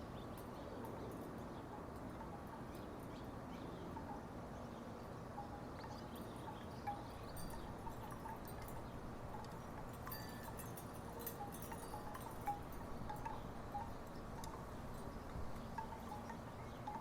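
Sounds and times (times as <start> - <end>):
wooden wind chimes clonking: 5.4 - 17.0.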